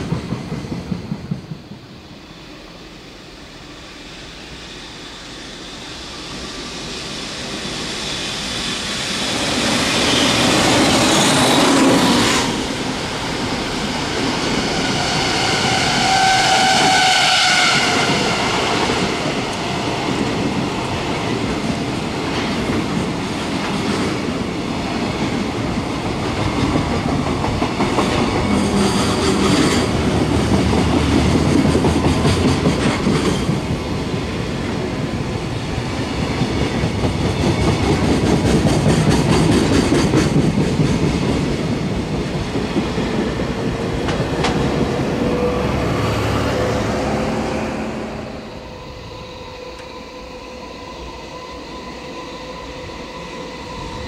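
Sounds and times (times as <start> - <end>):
train wheels rumbling and clattering: 0.0 - 2.1, 3.6 - 50.3.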